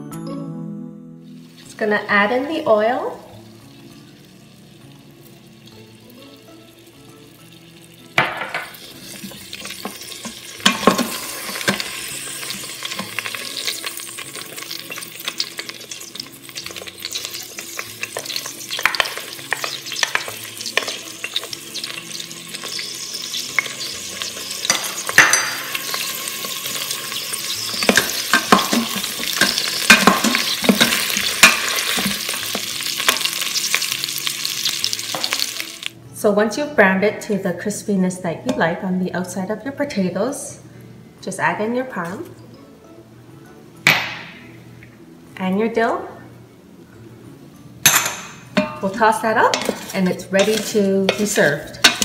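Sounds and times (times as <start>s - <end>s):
oil sizzling around potatoes: 1.2s - 36.0s, 47.8s - 52.0s.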